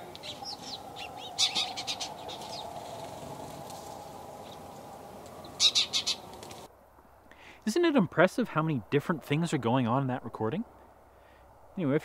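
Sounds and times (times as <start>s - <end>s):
small birds chirping: 0.0s - 6.7s
steady low hum: 0.0s - 7.4s.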